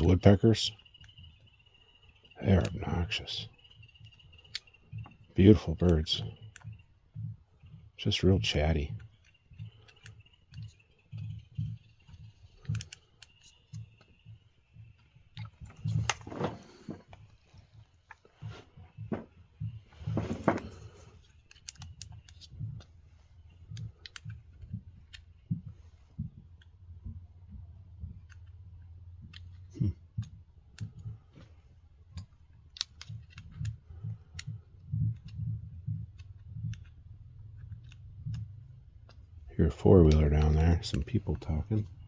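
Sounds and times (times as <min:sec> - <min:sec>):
steady low hum: 0:00.0 - 0:42.0
small clicks and taps of tools: 0:06.1 - 0:16.2, 0:18.1 - 0:28.6, 0:29.2 - 0:39.3.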